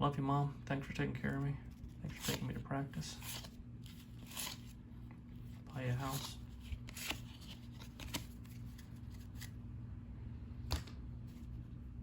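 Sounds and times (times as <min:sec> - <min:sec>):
cardboard cards being flipped: 0:01.2 - 0:02.6, 0:03.2 - 0:09.6.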